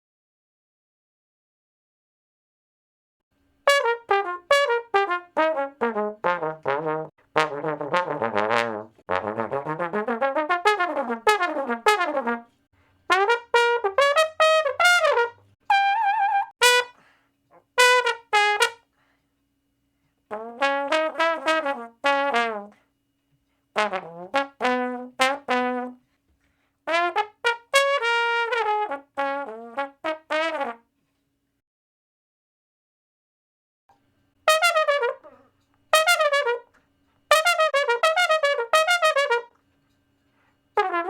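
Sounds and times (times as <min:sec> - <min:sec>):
brass instrument playing: 0:03.6 - 0:17.0, 0:17.8 - 0:18.8, 0:20.3 - 0:22.8, 0:23.8 - 0:26.0, 0:26.9 - 0:30.8, 0:34.5 - 0:36.7, 0:37.3 - 0:39.6, 0:40.8 - 0:41.0.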